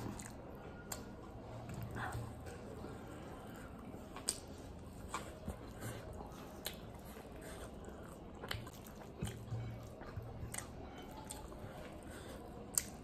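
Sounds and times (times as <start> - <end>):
person chewing and biting: 4.1 - 12.0.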